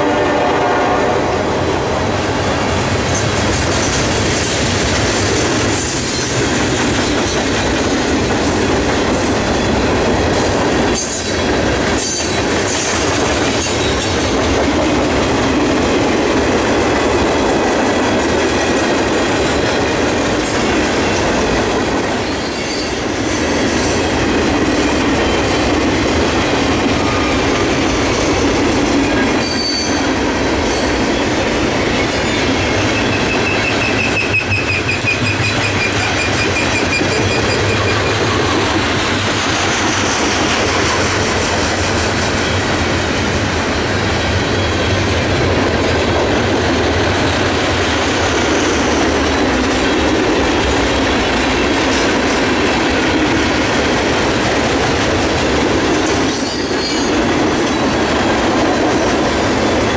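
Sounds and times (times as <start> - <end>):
train wheels on rails: 0.0 - 59.9
high wheel squeals: 32.2 - 38.5.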